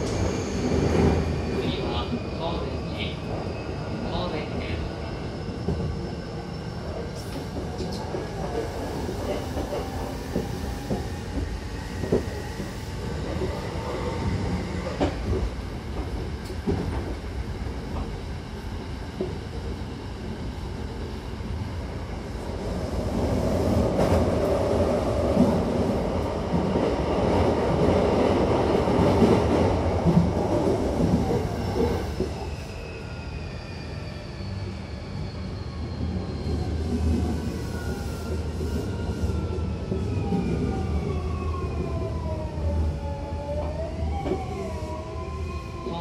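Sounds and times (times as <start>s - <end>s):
train wheels rumbling on rail: 0.0s - 32.7s.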